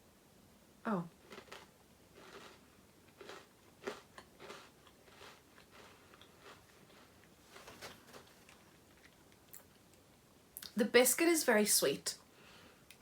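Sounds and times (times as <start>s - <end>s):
person chewing crunchy biscuit: 1.1s - 9.7s.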